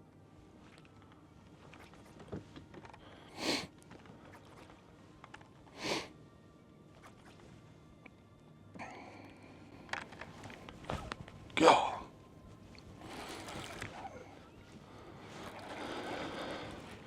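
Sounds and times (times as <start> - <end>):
sharp nose sniffs: 3.4 - 3.7.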